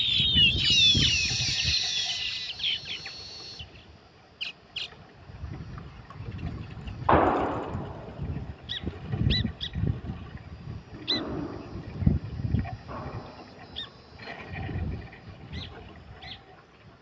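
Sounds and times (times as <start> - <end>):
birds chirping: 0.0 - 3.8, 10.9 - 12.1, 12.8 - 16.5.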